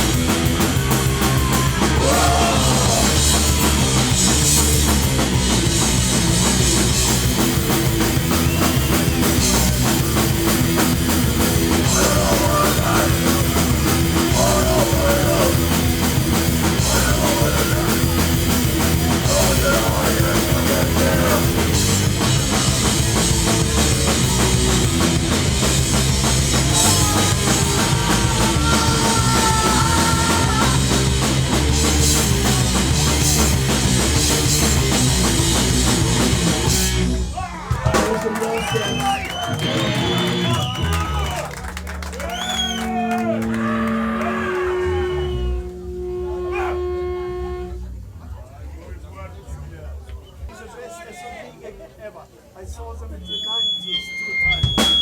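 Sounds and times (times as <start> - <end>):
distorted guitars: 0.0 - 41.3, 42.7 - 48.3
drums: 0.0 - 49.1, 53.2 - 55.0
bass guitar: 0.0 - 50.5.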